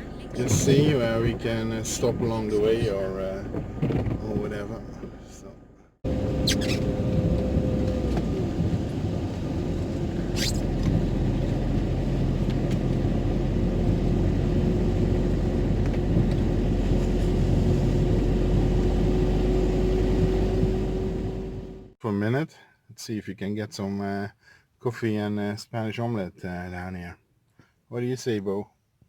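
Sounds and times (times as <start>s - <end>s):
faint constant hum: 0.0s - 7.3s
engine and road rumble: 0.0s - 22.0s.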